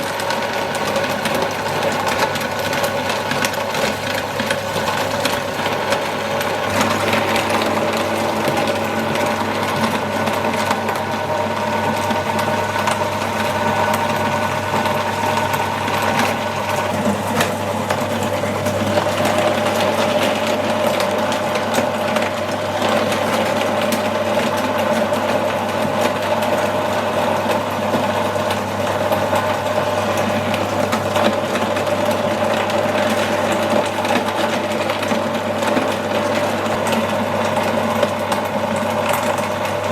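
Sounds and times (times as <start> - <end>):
meat grinder motor whining: 0.0 - 39.9.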